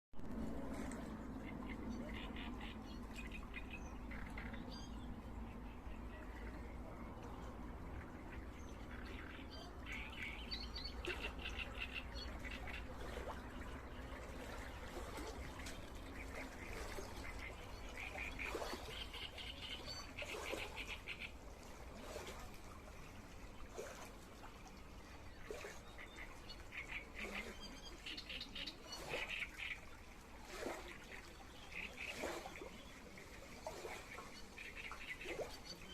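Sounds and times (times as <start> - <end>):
low steady rumble: 0.2 - 18.5.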